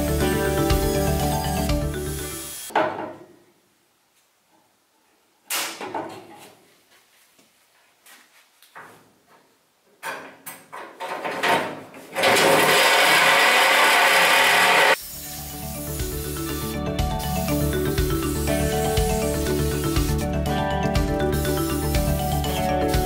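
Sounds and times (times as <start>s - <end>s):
metal knocks and clatter: 10.0s - 12.8s
loud power tool running: 12.2s - 15.0s.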